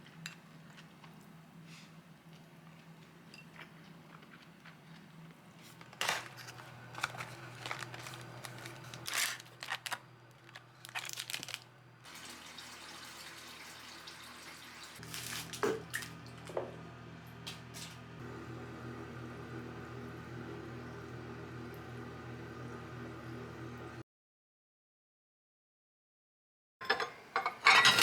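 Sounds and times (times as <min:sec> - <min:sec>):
crinkling and rustling: 0:03.6 - 0:11.7, 0:15.0 - 0:16.2.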